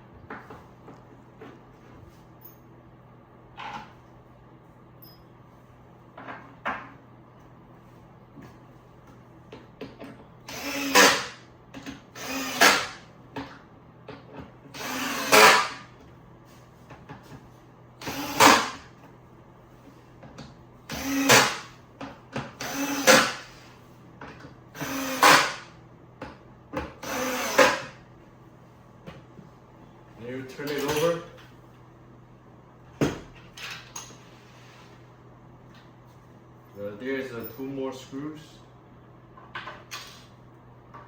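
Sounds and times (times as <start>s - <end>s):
electric drill driving screws: 10.5s - 11.4s, 12.1s - 13.0s, 14.7s - 15.8s, 18.0s - 18.8s, 20.9s - 21.7s, 22.6s - 23.6s, 24.8s - 25.7s, 27.0s - 27.9s.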